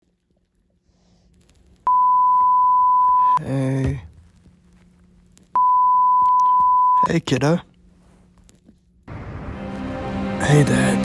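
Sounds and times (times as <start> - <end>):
high telephone beep: 1.9 - 3.4, 5.6 - 7.1.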